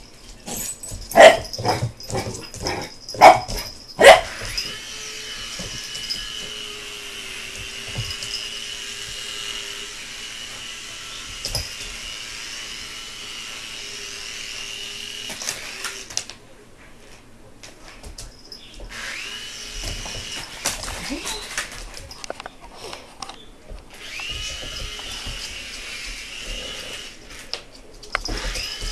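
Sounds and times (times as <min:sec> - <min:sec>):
toy helicopter motor whining: 0:03.9 - 0:16.1, 0:18.9 - 0:21.3, 0:23.9 - 0:28.9.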